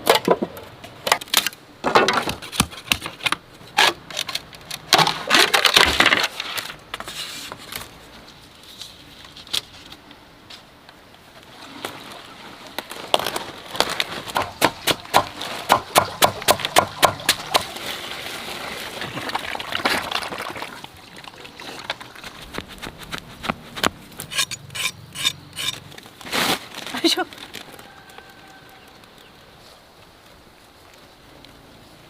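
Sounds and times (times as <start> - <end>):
rustling: 2.3 - 10.7, 11.4 - 15.8, 17.2 - 32.0
sharp knocks: 14.4 - 17.7.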